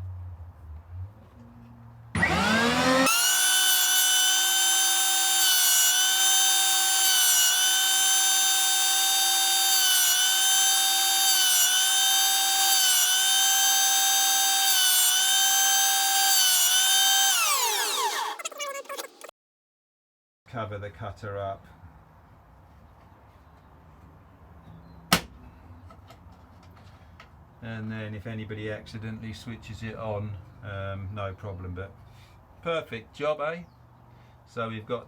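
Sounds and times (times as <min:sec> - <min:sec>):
router motor whining: 0:02.2 - 0:19.3.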